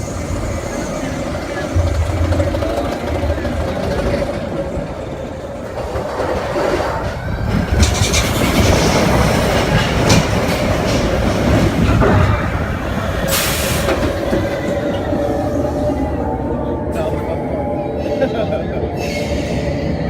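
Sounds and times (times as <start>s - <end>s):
roller coaster wheels rumbling: 0.0s - 20.0s.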